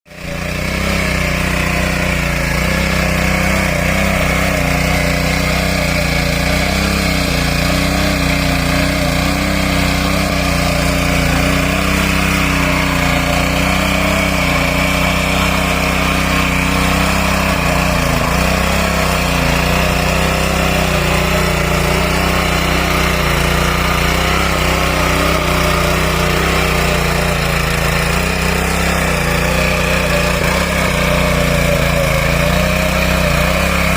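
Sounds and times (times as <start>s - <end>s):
power tiller engine running: 0.1s - 33.9s.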